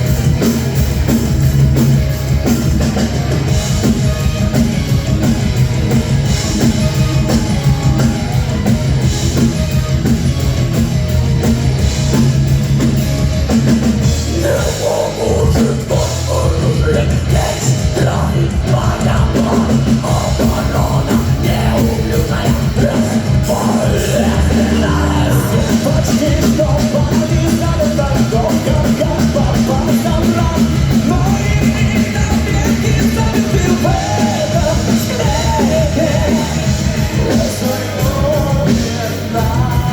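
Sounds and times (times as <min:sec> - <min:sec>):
heavy metal band playing: 0:00.0 - 0:39.9.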